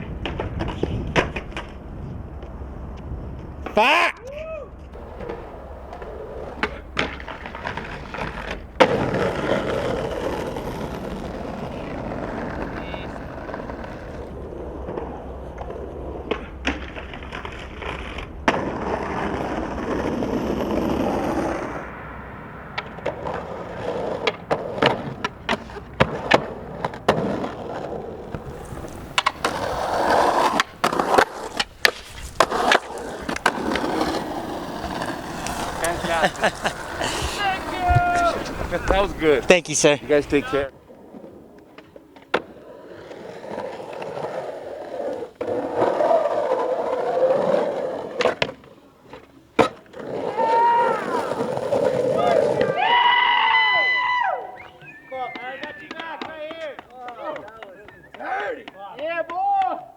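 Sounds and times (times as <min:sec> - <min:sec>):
skateboard wheels rolling: 0:00.0 - 0:59.9
skateboard clacking: 0:04.9 - 0:53.0, 0:54.6 - 0:59.9.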